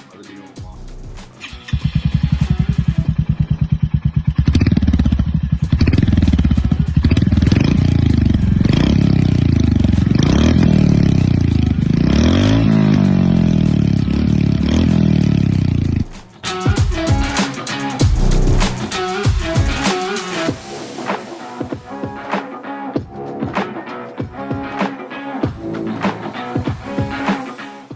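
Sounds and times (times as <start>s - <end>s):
motorcycle engine idling and revving: 0.6s - 17.4s, 18.0s - 19.8s.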